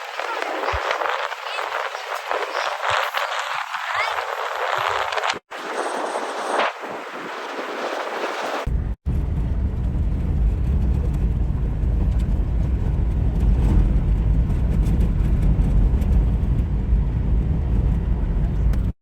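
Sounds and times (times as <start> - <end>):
vehicle rumbling on dirt trail: 8.6 - 18.9.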